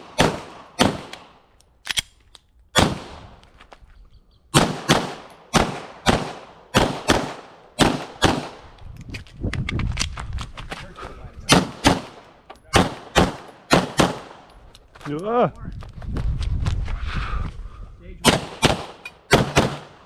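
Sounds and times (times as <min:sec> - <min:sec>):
pistol shots with echo: 0:00.0 - 0:01.3, 0:02.8 - 0:03.2, 0:04.5 - 0:08.6, 0:11.5 - 0:14.5, 0:18.2 - 0:20.0.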